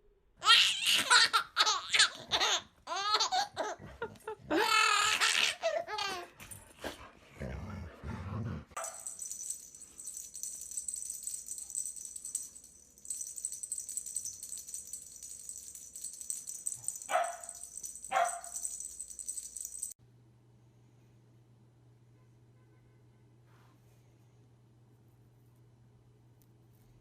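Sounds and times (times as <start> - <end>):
dog yelping: 17.1 - 18.6.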